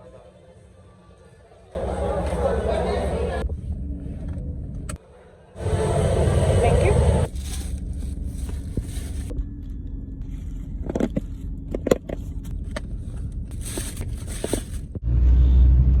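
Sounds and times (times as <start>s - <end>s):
car rumbling on the move: 5.6s - 16.0s.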